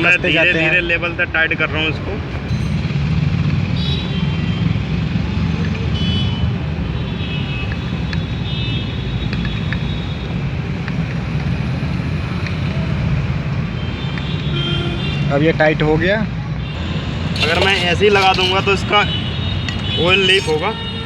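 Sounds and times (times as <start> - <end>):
road traffic rumble: 16.5 - 21.0.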